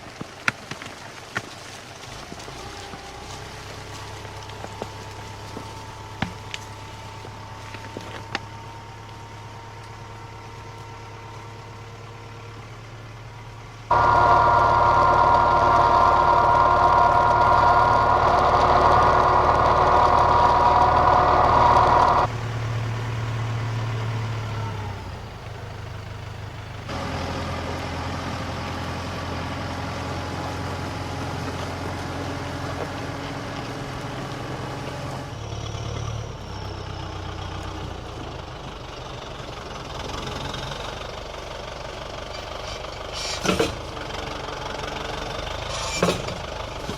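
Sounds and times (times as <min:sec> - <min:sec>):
low engine running: 0:01.9 - 0:46.9
high-pitched engine running: 0:13.9 - 0:46.9.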